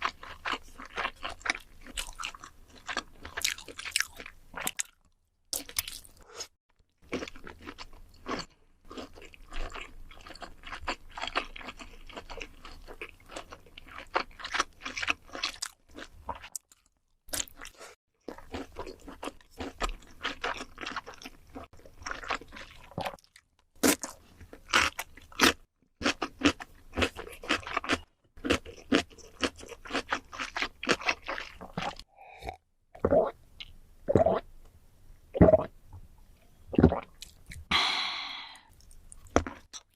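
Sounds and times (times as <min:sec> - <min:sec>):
chewing crunchy food: 0:00.0 - 0:34.4, 0:38.6 - 0:39.9
soft mouth sounds: 0:31.8 - 0:34.5, 0:36.8 - 0:39.3.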